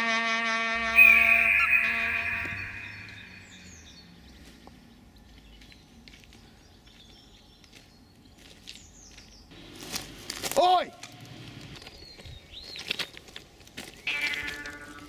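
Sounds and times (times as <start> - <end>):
high bird chirps: 0.8 - 4.2
faint outdoor ambience: 0.8 - 15.0.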